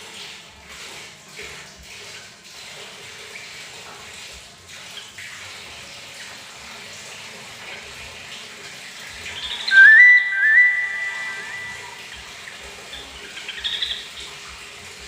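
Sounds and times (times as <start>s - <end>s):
tap water running: 0.0s - 15.0s
bird singing: 9.4s - 12.1s.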